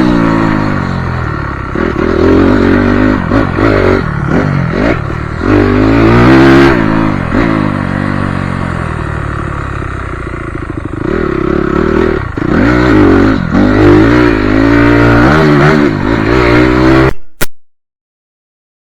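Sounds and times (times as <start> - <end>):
motocross bike engine revving: 0.0 - 17.4
brief click: 17.1 - 17.6.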